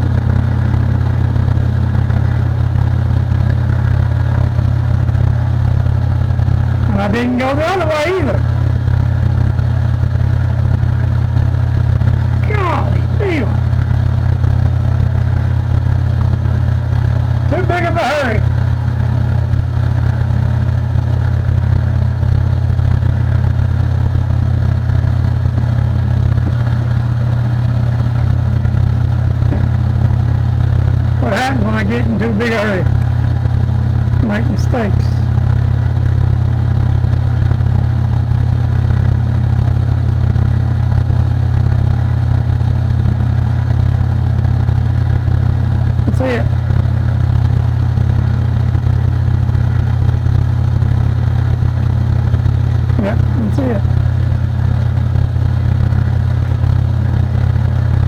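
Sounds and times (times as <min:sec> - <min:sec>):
machine motor humming: 0:00.0 - 0:21.6, 0:24.0 - 0:36.2.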